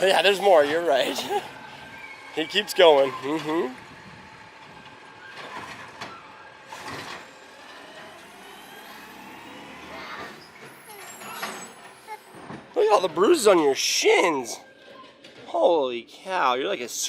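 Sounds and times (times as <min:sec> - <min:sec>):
garbage truck running: 0:00.0 - 0:15.7.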